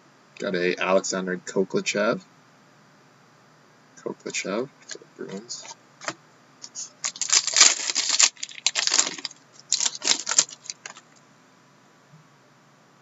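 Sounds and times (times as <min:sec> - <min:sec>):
foil wrappers crackling: 0:06.9 - 0:11.2.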